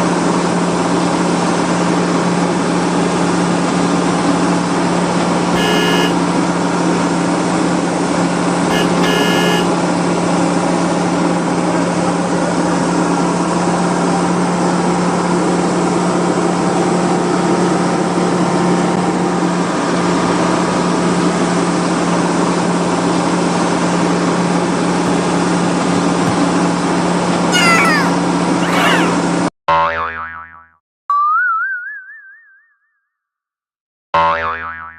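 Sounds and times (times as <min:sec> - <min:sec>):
toy vehicle engine hum: 0:05.6 - 0:06.2, 0:08.7 - 0:09.7, 0:27.5 - 0:29.2.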